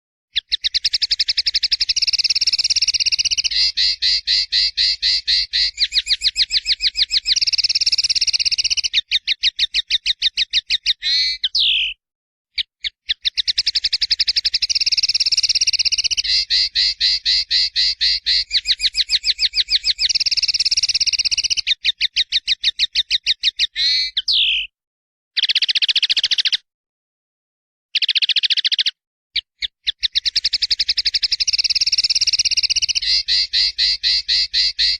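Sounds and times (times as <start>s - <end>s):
songbird buzzy trills: 0.4s - 9.0s, 13.2s - 21.8s.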